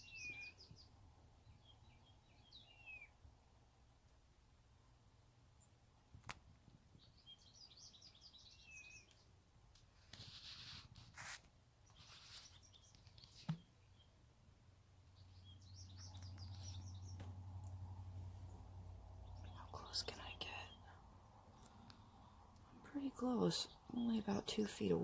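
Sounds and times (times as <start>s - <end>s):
songbirds twittering: 0.0s - 3.2s, 6.9s - 9.4s, 11.8s - 14.2s, 15.0s - 25.0s.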